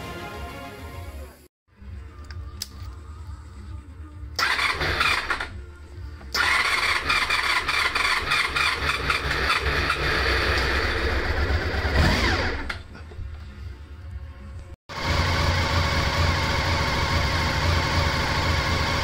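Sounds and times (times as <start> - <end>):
motorcycle engine cranking on starter: 4.4 - 5.5, 6.3 - 12.8.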